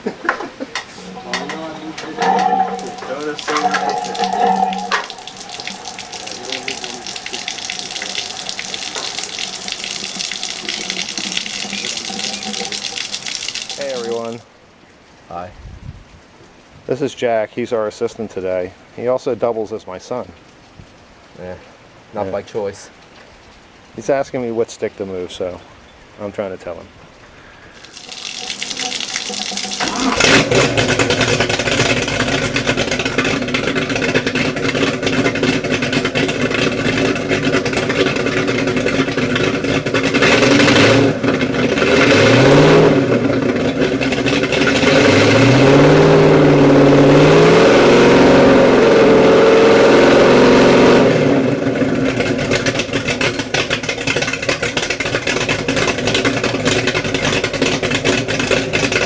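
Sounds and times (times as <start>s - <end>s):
boat engine starting and idling: 0.0s - 14.4s, 27.8s - 59.0s
engine revving: 0.7s - 14.2s, 35.6s - 51.6s.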